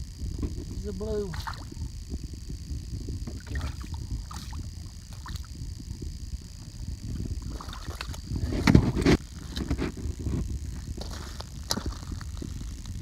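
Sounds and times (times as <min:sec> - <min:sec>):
wind rumble on microphone: 0:00.0 - 0:13.0
water sloshing around kayak: 0:07.4 - 0:08.9.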